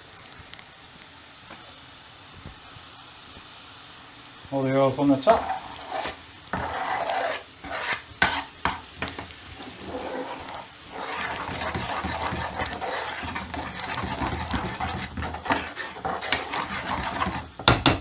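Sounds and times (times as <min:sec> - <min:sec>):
sauce sizzling in a frying pan: 0:00.0 - 0:18.0
spoon knocking against a pan: 0:08.2 - 0:09.3, 0:11.4 - 0:18.0.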